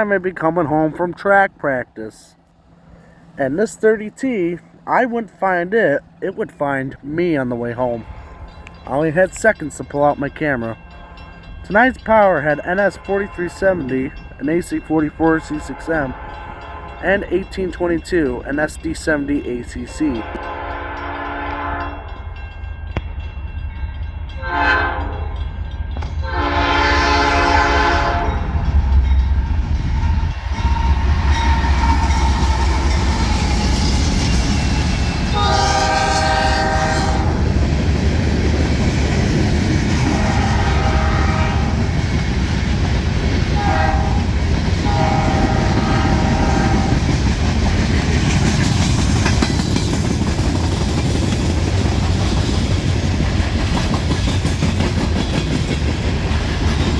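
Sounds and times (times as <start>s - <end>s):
freight train rumbling past: 0.0s - 56.9s
locomotive air horn blasts: 20.3s - 22.0s, 24.4s - 25.3s, 26.2s - 28.5s, 35.3s - 37.5s, 40.1s - 41.8s, 43.6s - 47.0s.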